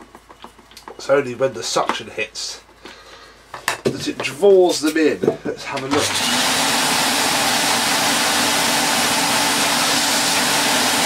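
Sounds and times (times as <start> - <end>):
vacuum cleaner running: 5.8 - 11.0.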